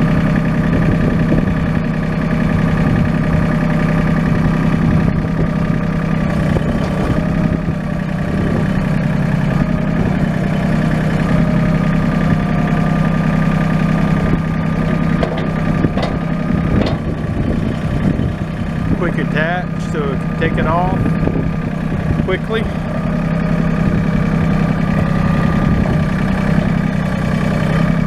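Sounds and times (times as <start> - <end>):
tractor diesel engine idling: 0.0 - 28.0
short knocks: 14.9 - 17.8.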